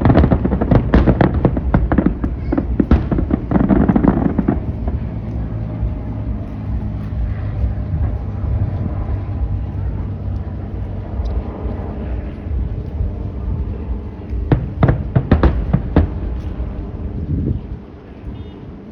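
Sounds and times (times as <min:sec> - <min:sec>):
fireworks bursting and crackling: 0:00.0 - 0:18.5
faint hum: 0:00.0 - 0:18.9
low rumble: 0:00.0 - 0:18.9.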